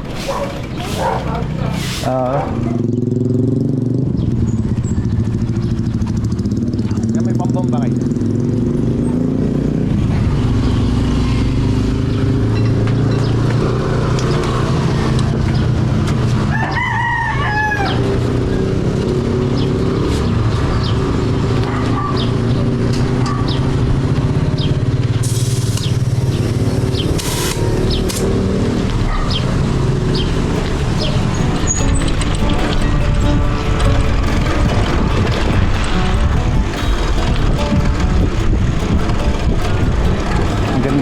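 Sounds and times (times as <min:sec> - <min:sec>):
rooster crowing: 0:16.4 - 0:18.2
sharp clicks: 0:27.0 - 0:28.4
steady low rumble: 0:29.7 - 0:41.0.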